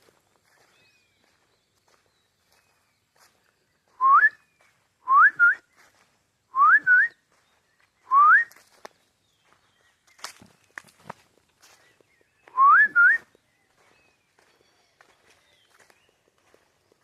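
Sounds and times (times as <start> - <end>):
person whistling rising calls: 3.9 - 5.7, 6.5 - 7.2, 8.0 - 8.6, 12.4 - 13.3.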